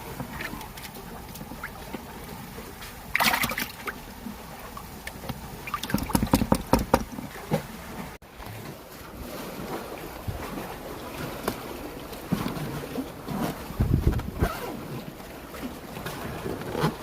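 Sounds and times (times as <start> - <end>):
sharp knocks and splashes: 0.0 - 14.4
seawater sloshing: 0.0 - 17.0
wind on microphone: 12.3 - 15.1.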